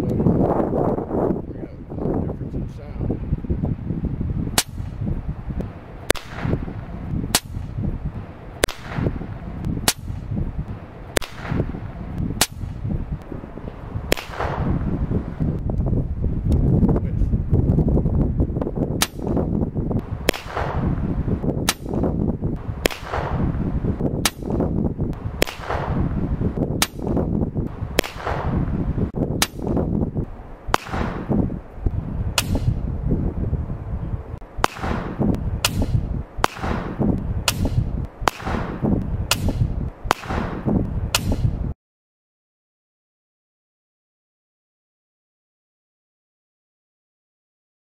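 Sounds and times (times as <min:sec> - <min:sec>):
steady low rumble: 0:00.0 - 0:41.8
air pistol shots: 0:04.6 - 0:05.0, 0:06.0 - 0:07.8, 0:08.6 - 0:12.9, 0:14.1 - 0:14.8, 0:19.0 - 0:19.4, 0:20.0 - 0:26.2, 0:26.8 - 0:28.8, 0:29.4 - 0:29.8, 0:30.7 - 0:31.4, 0:32.4 - 0:32.8, 0:34.6 - 0:41.6.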